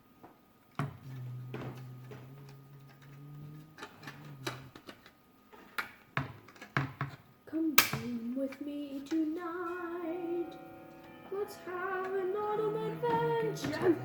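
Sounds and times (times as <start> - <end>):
low steady hum: 0.8 - 5.0, 7.5 - 14.0.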